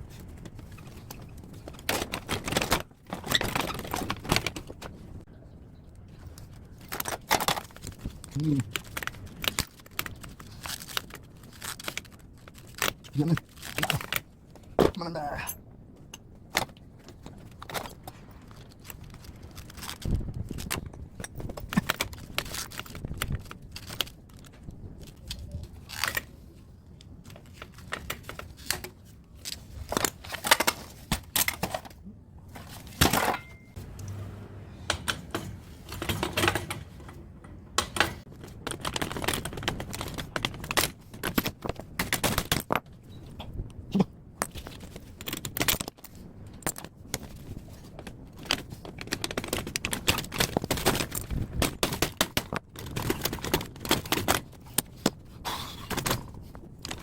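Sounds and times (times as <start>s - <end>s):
hand tools clanking on metal: 33.0s - 33.9s.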